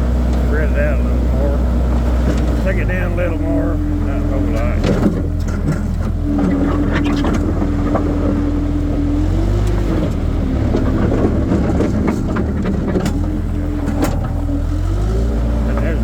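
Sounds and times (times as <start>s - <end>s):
loader engine running: 0.0s - 16.0s
sharp knocks and clatter: 4.8s - 8.5s, 9.5s - 14.5s.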